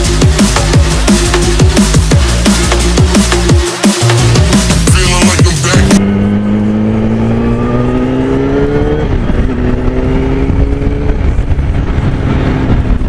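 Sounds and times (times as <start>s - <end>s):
motorcycle engine accelerating: 5.6s - 13.0s.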